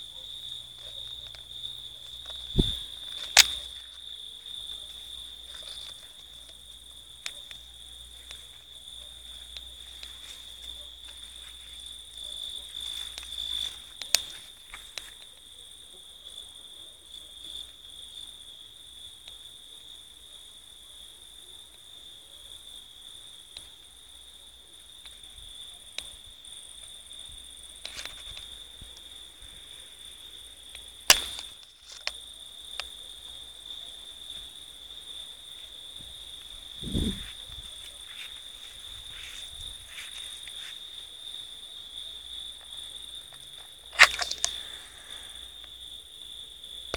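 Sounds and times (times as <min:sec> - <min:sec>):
cricket trilling: 0:00.0 - 0:46.9
sharp clicks: 0:43.9 - 0:44.8.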